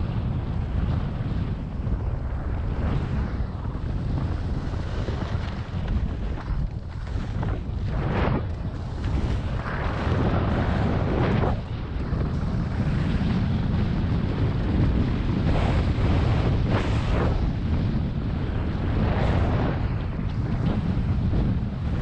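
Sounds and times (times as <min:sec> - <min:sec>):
wind buffeting microphone: 0:00.0 - 0:22.0
skis scraping over snow: 0:02.6 - 0:18.0.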